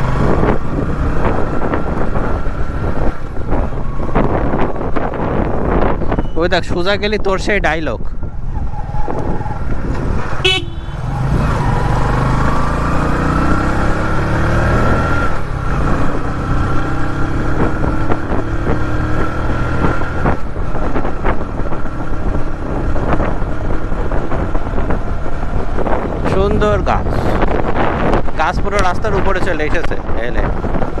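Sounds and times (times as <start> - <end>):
motorcycle engine accelerating: 0.0 - 6.1, 8.4 - 31.0
horn toot: 10.4 - 11.1.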